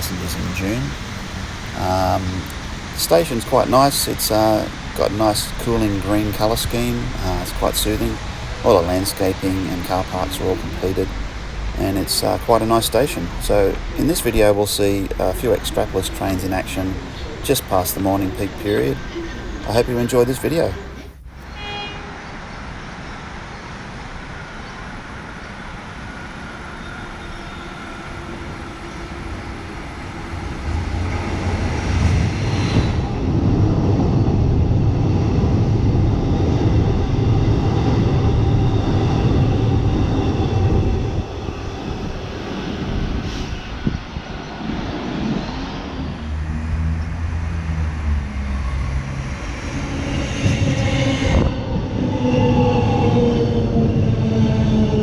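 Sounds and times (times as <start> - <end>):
train wheels rumbling on track: 0.0 - 22.0, 22.8 - 55.0
train slowing whine: 0.0 - 55.0.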